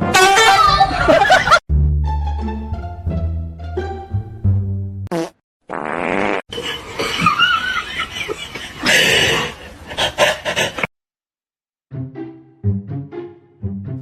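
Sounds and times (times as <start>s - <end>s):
people laughing: 0.9s - 1.6s, 6.6s - 10.7s.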